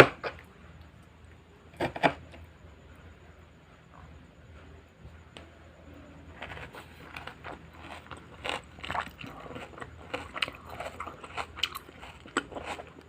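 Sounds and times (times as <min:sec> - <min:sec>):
chewing crunchy raw vegetables: 0:06.3 - 0:13.0.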